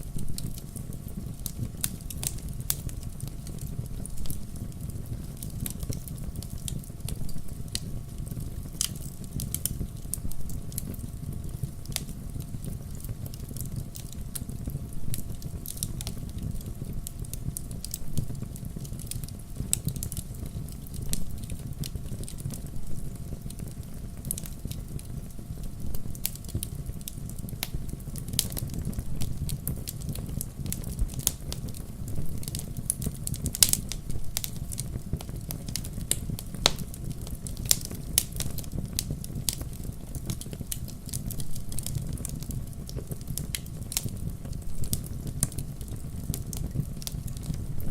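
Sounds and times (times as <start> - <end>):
low rumble of flames: 0.0 - 47.9
wood fire crackling and popping: 0.0 - 47.9.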